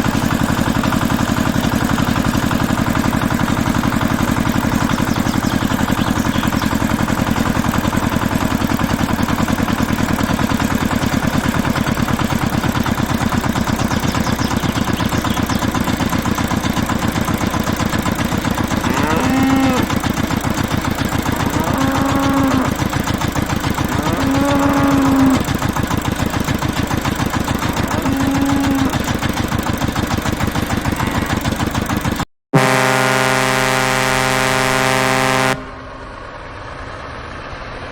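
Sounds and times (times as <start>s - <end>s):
small engine running: 0.0s - 37.9s
short pitched calls: 23.8s - 25.5s, 27.6s - 29.2s.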